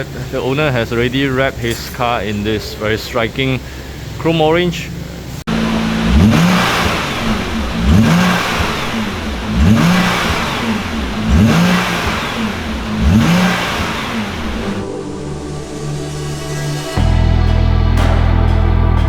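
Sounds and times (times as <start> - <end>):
car engine revving: 5.5 - 15.6.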